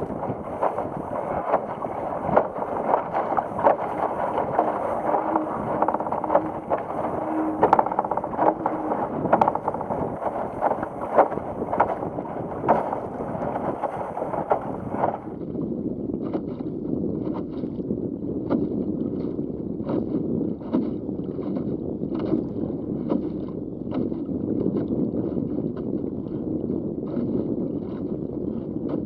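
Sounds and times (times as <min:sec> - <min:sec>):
sharp water slaps: 0:00.0 - 0:15.3
water splashing against hull: 0:00.0 - 0:29.0
wind buffeting microphone: 0:00.0 - 0:29.0.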